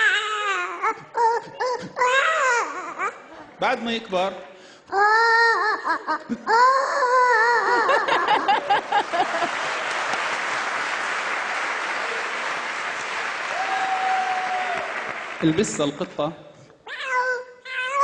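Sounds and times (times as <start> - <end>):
person imitating child crying: 0.0 - 3.5, 4.9 - 8.5
audience applause: 8.5 - 15.9.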